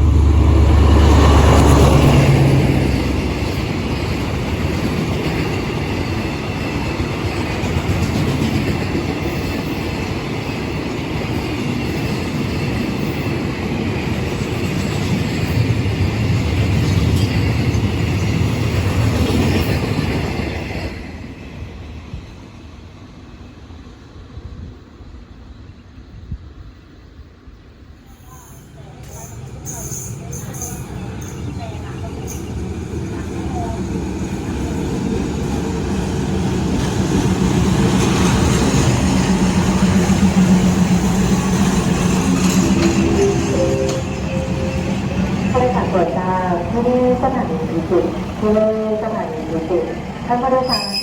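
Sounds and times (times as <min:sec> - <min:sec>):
train wheels rumbling on rails: 0:00.0 - 0:51.0.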